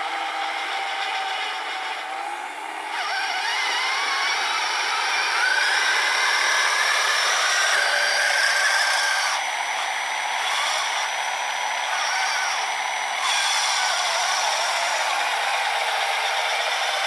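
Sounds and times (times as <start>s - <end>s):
small electric motors whirring: 0.0s - 17.0s.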